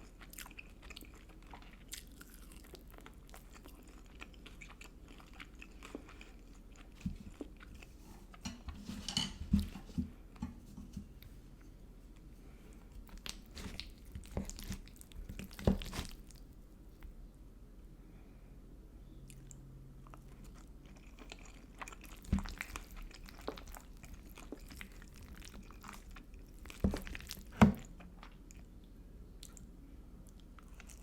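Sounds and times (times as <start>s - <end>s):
person chewing food: 0.0s - 8.4s, 12.1s - 17.1s, 19.3s - 31.0s
crunchy bites: 13.1s - 16.4s.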